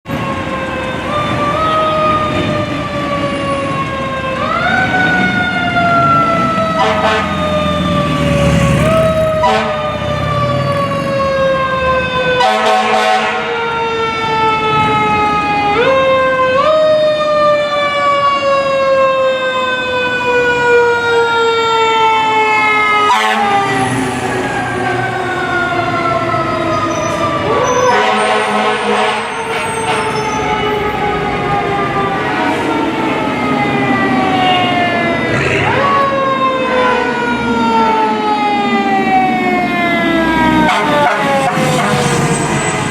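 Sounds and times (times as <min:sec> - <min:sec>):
fire truck sirens wailing: 0:00.0 - 0:42.9
truck engines rumbling: 0:00.1 - 0:42.9.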